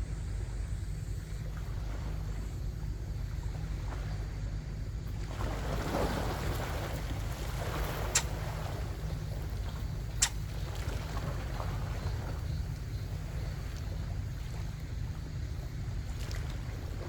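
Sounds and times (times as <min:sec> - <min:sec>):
sharp click: 0:08.1 - 0:08.3.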